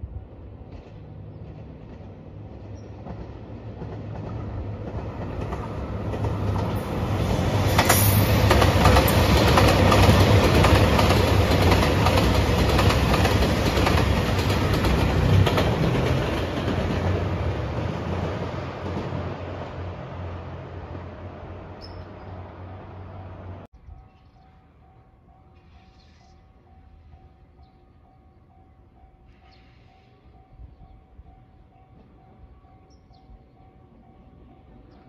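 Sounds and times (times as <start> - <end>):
diesel train engines running: 0.0 - 23.7.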